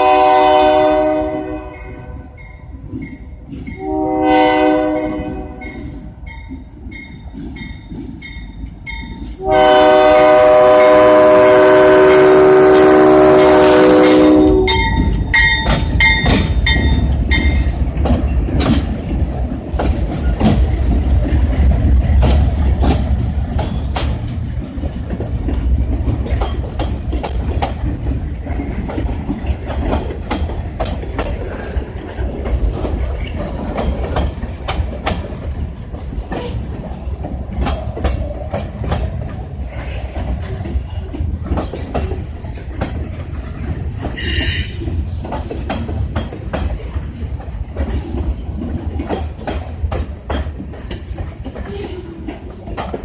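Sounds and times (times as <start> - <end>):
diesel train horn: 0.0 - 2.4, 3.8 - 6.0, 9.4 - 15.1
train rumbling past: 0.0 - 53.0
wheels clicking over rail joints: 1.6 - 4.0, 4.8 - 53.0.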